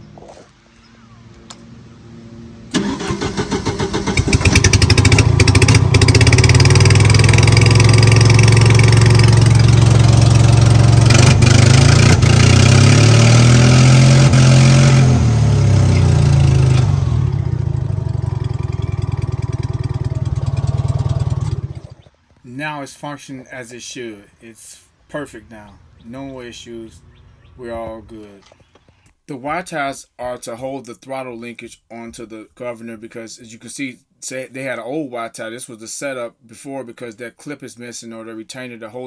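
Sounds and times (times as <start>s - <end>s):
engine running: 0.1s - 22.2s
engine cranking: 2.7s - 15.1s.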